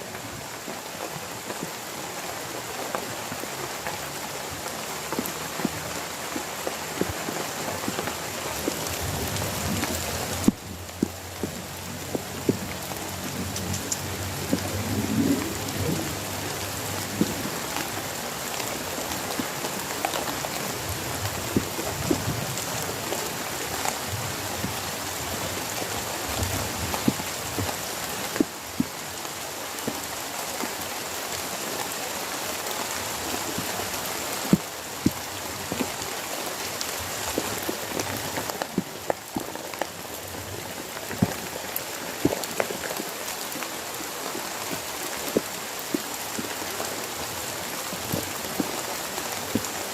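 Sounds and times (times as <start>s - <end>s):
heavy rain falling: 0.0s - 49.9s
raindrops tapping close by: 0.0s - 49.9s.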